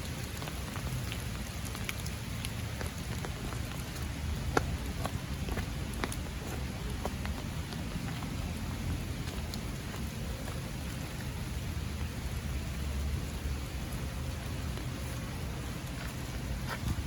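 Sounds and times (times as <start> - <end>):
light rain falling: 0.0 - 17.0
steady low rumble: 0.0 - 17.0.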